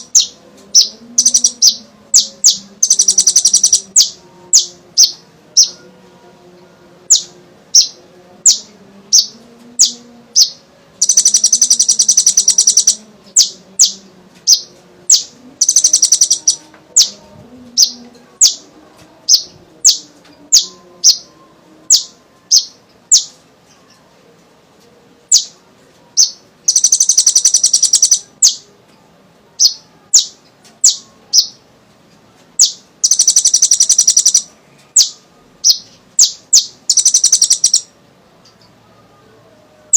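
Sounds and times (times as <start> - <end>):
rapid bird trill: 0.0 - 5.8, 7.1 - 17.2, 26.2 - 28.6, 32.6 - 37.9
sharp high bird chirps: 0.0 - 5.8, 9.2 - 17.2, 26.2 - 28.6, 32.6 - 37.9.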